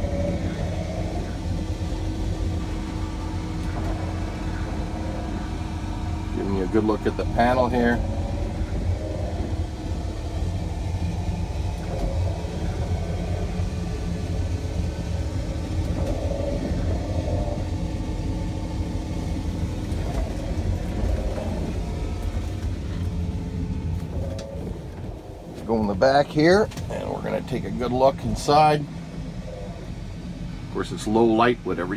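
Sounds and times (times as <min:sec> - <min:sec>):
engine rumbling: 0:00.0 - 0:31.9
faint even hum: 0:00.0 - 0:31.9.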